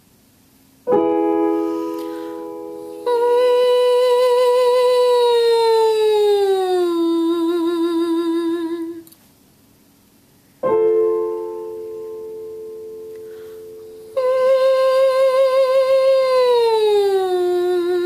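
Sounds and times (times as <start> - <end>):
piano chord ringing: 0.9 - 3.9, 10.6 - 14.6
woman humming with vibrato: 2.0 - 9.1, 13.2 - 18.0.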